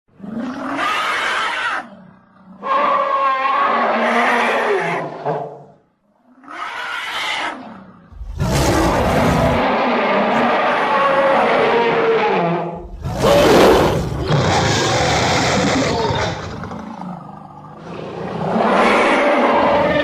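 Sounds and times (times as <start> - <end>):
monster roars: 6.7 - 20.0
deep rumble: 8.1 - 9.6, 12.8 - 15.7.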